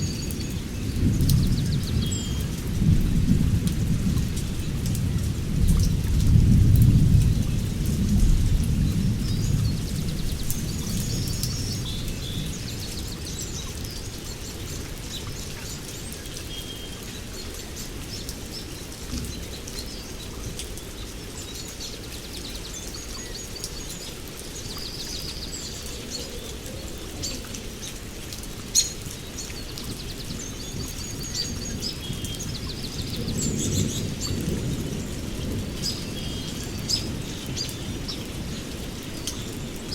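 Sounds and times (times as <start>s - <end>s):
steady rain: 0.0s - 39.9s
thunder rumbling: 0.8s - 12.7s
small birds chirping: 8.2s - 39.9s.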